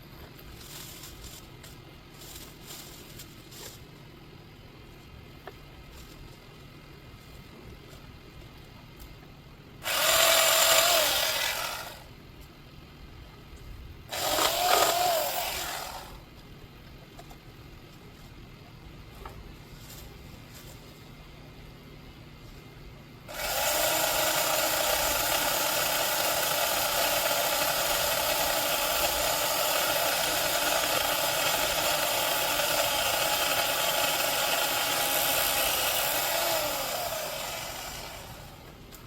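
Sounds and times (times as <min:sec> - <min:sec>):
electric chainsaw running: 0:09.8 - 0:12.1, 0:14.1 - 0:16.2, 0:23.3 - 0:38.7.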